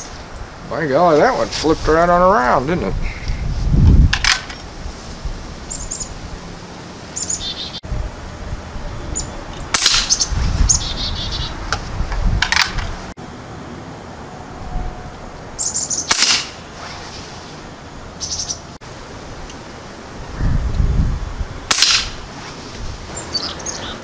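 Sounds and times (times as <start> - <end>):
small birds chirping: 5.7 - 6.2, 7.1 - 7.8, 8.9 - 11.7, 15.5 - 16.2, 18.2 - 18.8, 22.7 - 24.0.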